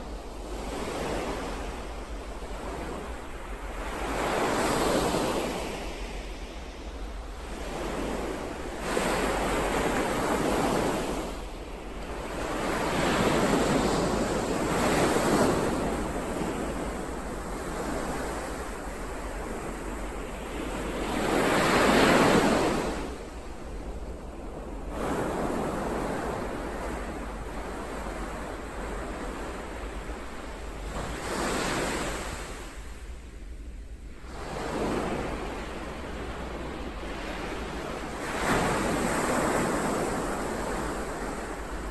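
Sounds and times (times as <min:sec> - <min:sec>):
ocean waves breaking: 0:34.2 - 0:41.9.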